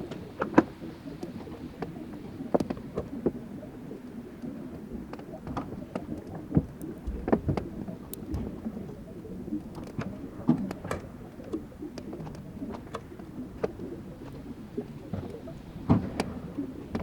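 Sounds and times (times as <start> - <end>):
ice crackling and popping: 0.3 - 10.8.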